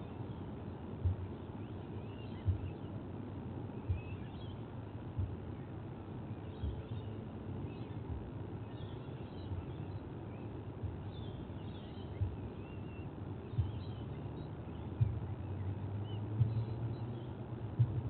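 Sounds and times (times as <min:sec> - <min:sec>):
outdoor background noise: 0:00.0 - 0:18.0
dull low thumps: 0:01.0 - 0:01.3, 0:02.4 - 0:02.8, 0:03.8 - 0:04.2, 0:05.1 - 0:05.6, 0:06.6 - 0:07.0, 0:08.0 - 0:08.5, 0:10.8 - 0:11.2, 0:12.1 - 0:12.7, 0:13.5 - 0:18.0
faint high bird chirps: 0:01.4 - 0:03.0, 0:03.7 - 0:18.0.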